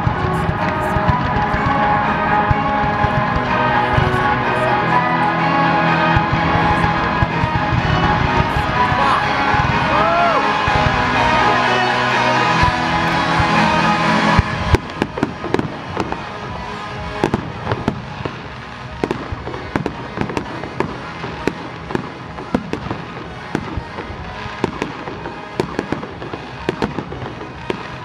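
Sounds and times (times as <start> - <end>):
fireworks bangs and pops: 0.0 - 4.3, 12.4 - 28.0
fireworks crackle: 0.0 - 28.0
music: 0.0 - 28.0.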